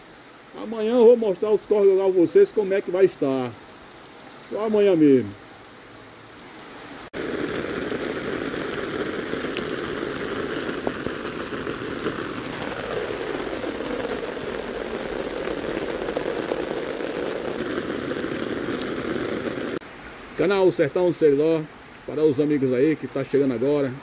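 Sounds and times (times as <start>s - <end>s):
heavy rain pouring: 0.0s - 24.0s
raindrops ticking: 7.2s - 19.8s.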